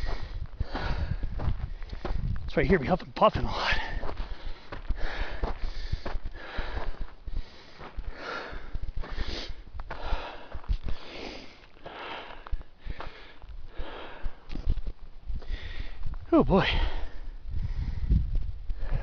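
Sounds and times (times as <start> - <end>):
person huffing and puffing: 0.0 - 2.2, 3.4 - 14.7.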